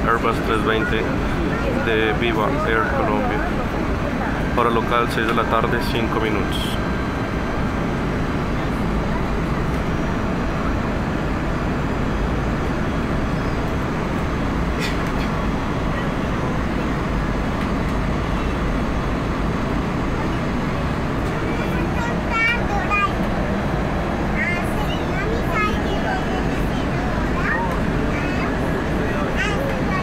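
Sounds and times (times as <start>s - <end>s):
airplane cabin engine noise: 0.0s - 30.0s.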